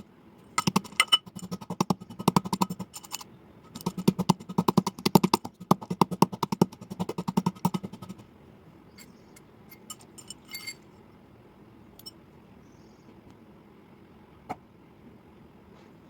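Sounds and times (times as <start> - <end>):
pencil being chewed crunching: 3.7 - 8.2.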